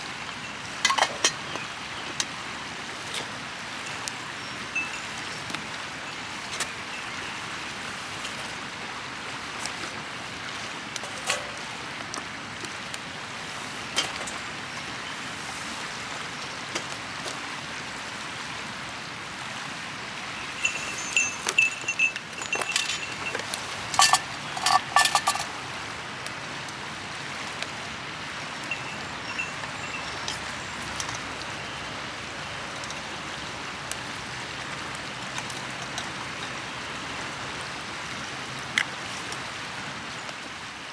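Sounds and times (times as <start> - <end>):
river rushing: 0.0 - 40.9
metal clinking and ringing: 0.3 - 1.6, 11.0 - 11.7, 20.4 - 25.7, 28.7 - 31.2.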